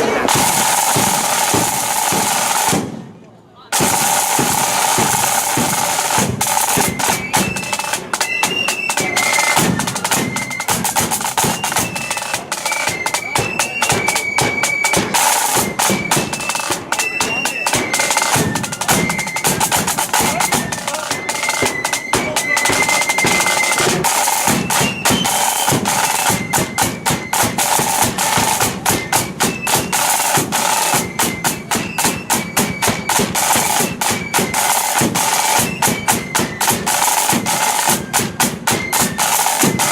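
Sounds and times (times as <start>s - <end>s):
shrill flutes playing a march: 0.0s - 2.8s, 3.8s - 39.9s
snare drum rolls: 0.0s - 39.9s.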